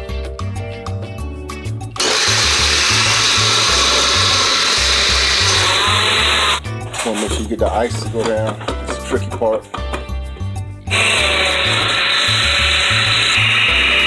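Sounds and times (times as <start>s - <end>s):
blender crushing ice: 2.0s - 7.3s, 10.9s - 14.0s.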